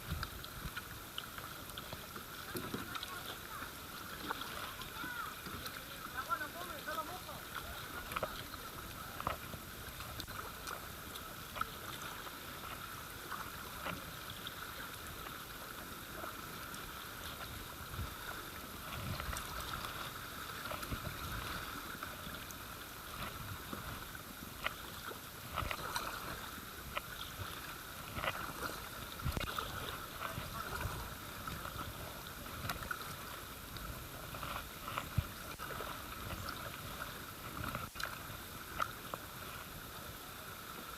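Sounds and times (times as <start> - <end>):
paddle splashes and knocks: 0.0 - 39.8
river water babbling: 0.0 - 40.9.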